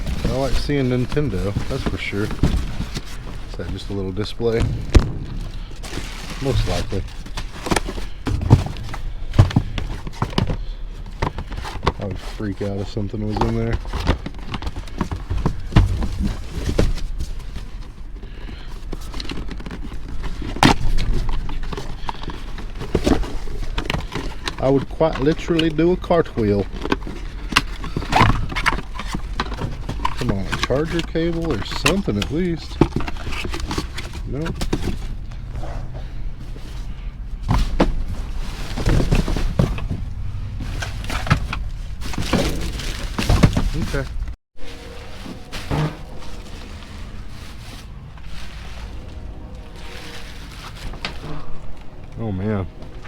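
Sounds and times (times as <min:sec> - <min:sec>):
steady low rumble: 0:00.0 - 0:12.2
knocks and clunks in dumpster: 0:00.0 - 0:53.0
trash rustling: 0:00.0 - 0:53.0.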